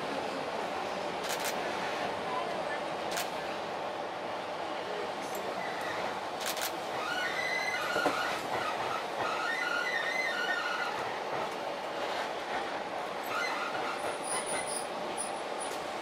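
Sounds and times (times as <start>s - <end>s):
train running: 0.0s - 16.0s
train wheels squealing: 6.9s - 11.2s, 13.2s - 15.8s.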